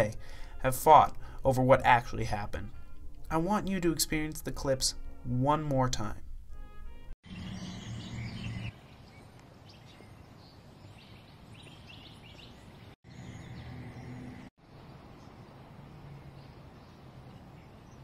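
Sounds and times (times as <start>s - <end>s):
small birds chirping: 7.2s - 18.0s.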